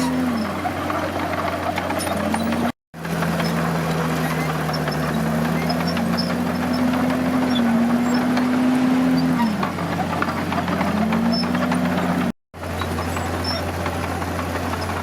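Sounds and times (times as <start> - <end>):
heavy diesel engine revving: 0.0 - 15.0.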